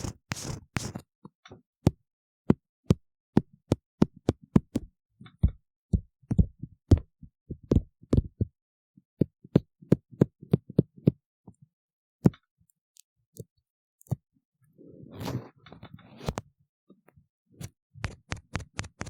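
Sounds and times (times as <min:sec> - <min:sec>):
tool scraping inside ear model: 0:00.0 - 0:01.0.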